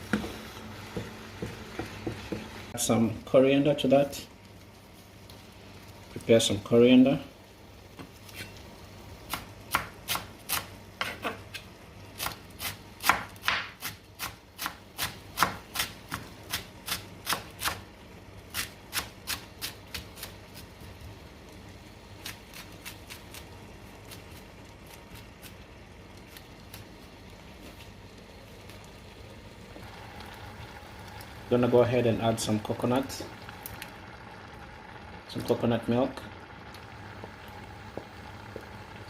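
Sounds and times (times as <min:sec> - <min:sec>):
knife chopping on cutting board: 0:12.2 - 0:17.8.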